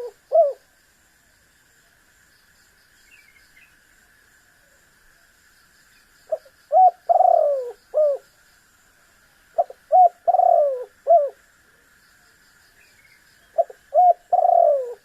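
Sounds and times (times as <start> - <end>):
dove cooing: 0.0 - 0.6, 6.4 - 8.2, 9.6 - 11.4, 13.5 - 15.0.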